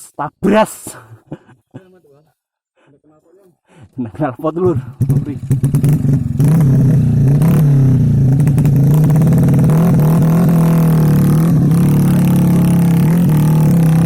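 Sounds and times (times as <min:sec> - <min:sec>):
off-road motorcycle engine revving: 0:04.5 - 0:14.0.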